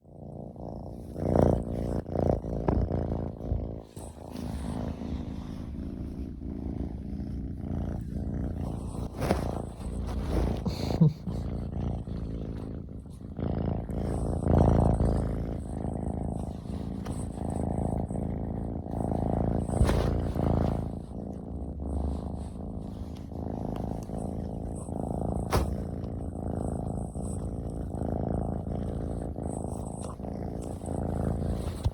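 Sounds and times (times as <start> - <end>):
kitten purring: 0.0 - 31.9.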